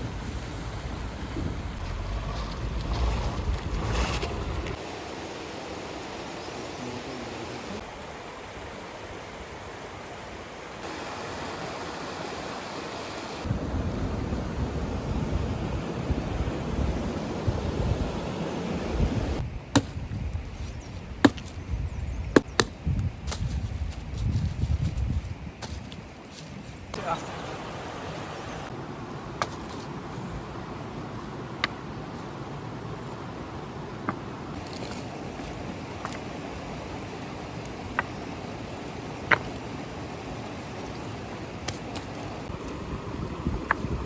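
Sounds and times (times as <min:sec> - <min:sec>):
wind rumbling on microphone: 0:00.0 - 0:04.8, 0:13.4 - 0:27.0, 0:38.9 - 0:44.0.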